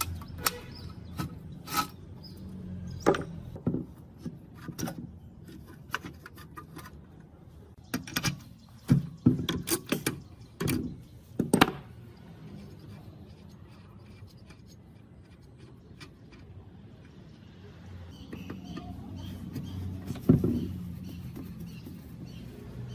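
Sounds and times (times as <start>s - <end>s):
tools clicking and knocking: 3.0s - 7.3s, 7.9s - 17.4s.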